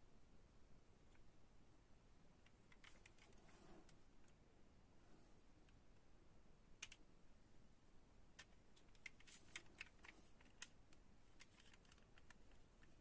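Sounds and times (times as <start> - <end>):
toy cars clicking and tapping: 11.4 - 13.0.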